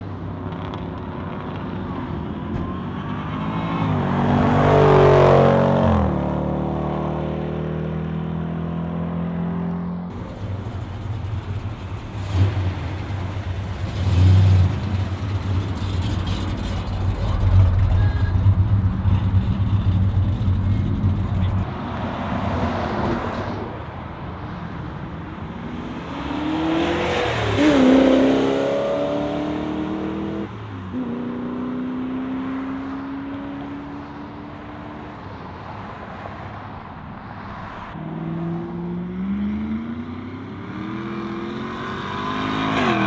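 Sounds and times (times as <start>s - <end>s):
muscle car engine revving: 10.1s - 21.7s
deep exhaust rumble: 10.1s - 21.8s.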